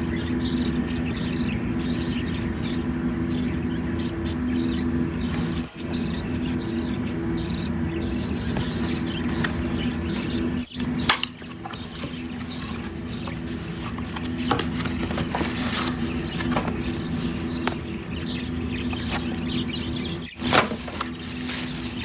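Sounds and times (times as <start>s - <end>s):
steady low hum: 0.5s - 22.0s
packaging clicks and rustles: 8.4s - 22.0s.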